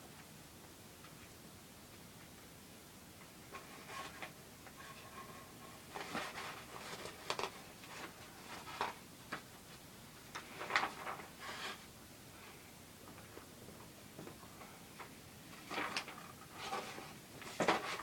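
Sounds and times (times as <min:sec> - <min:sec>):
plastic packaging rustling: 0:05.9 - 0:09.4.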